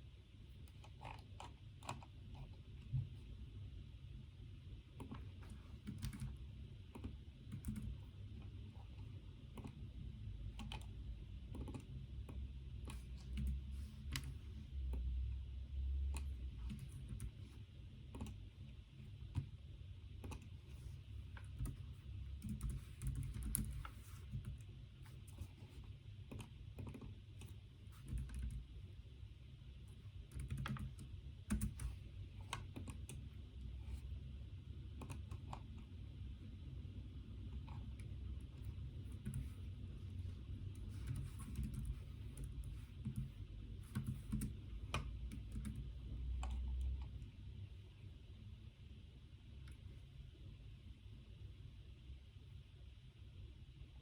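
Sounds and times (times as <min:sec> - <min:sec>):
low steady background hum: 0:00.0 - 0:54.0
computer keyboard typing: 0:00.5 - 0:03.2, 0:04.9 - 0:09.9, 0:10.5 - 0:15.0, 0:16.1 - 0:19.5, 0:20.2 - 0:20.6, 0:21.3 - 0:28.8, 0:30.2 - 0:34.0, 0:35.0 - 0:35.9, 0:37.4 - 0:39.8, 0:40.6 - 0:47.2.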